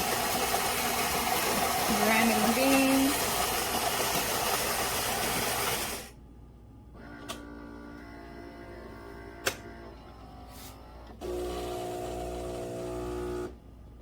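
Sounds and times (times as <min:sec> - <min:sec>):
coffee grinder whirring: 0:00.0 - 0:06.1, 0:11.2 - 0:13.6
machine motor humming: 0:10.9 - 0:13.6.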